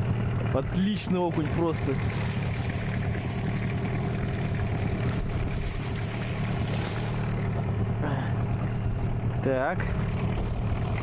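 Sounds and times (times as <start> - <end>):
outboard motor idling: 0.0 - 11.0
water noise: 0.0 - 11.0
wind: 0.0 - 11.0.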